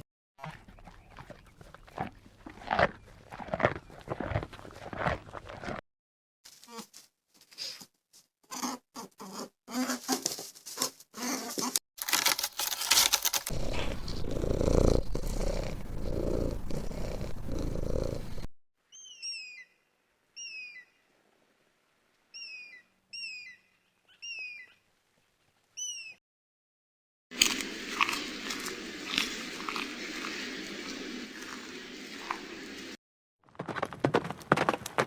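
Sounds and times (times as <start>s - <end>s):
animal calls: 13.5s - 18.4s.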